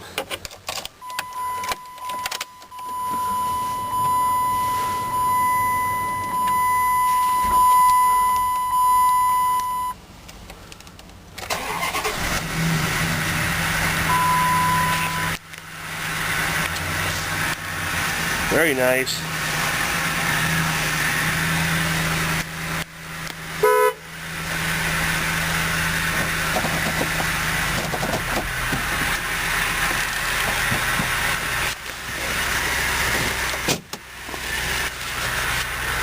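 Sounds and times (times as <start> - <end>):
car engine idling: 0.0 - 36.0
car horn toot: 1.0 - 10.0, 14.1 - 15.4, 23.6 - 24.1.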